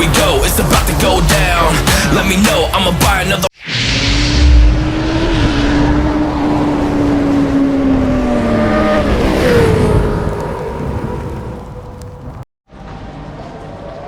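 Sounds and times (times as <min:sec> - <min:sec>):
higher falling tone: 0:03.6 - 0:11.9.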